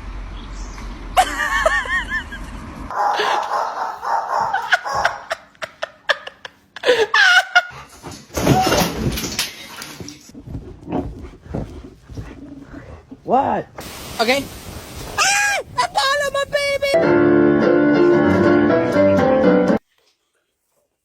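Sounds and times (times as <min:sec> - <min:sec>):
people laughing: 0:01.2 - 0:07.8
dog whining and yowling: 0:02.9 - 0:05.4.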